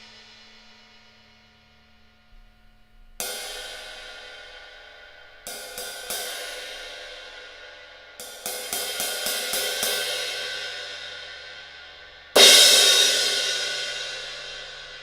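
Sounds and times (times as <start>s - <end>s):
cymbals struck and ringing: 3.3s - 15.0s.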